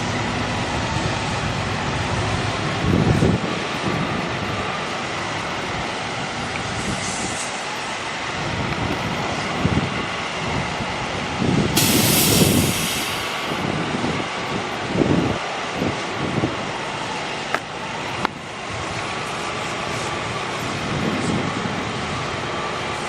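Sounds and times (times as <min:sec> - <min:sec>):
heavy truck running: 0:00.0 - 0:23.0
loud burst of hissing: 0:06.7 - 0:08.0, 0:11.8 - 0:14.0.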